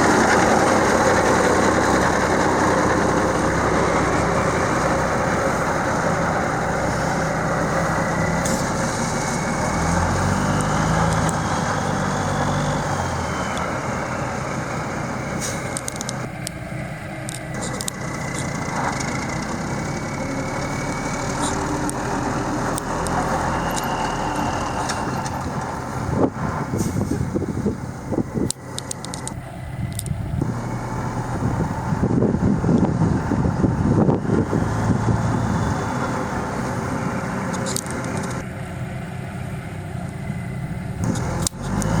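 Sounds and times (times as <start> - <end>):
truck diesel engine running: 0.0 - 42.0
sharp clicks: 10.5 - 11.5, 17.2 - 19.3, 28.4 - 30.5, 37.5 - 38.4.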